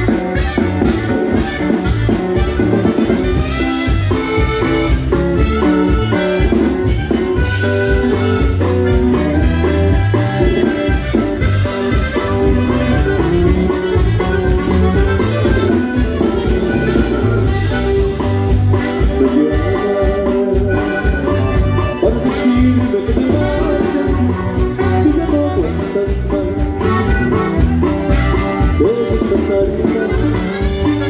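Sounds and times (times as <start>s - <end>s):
band playing dance music: 0.0s - 31.0s
bass and drum kit beat: 0.0s - 31.0s
saxophone: 0.0s - 31.0s.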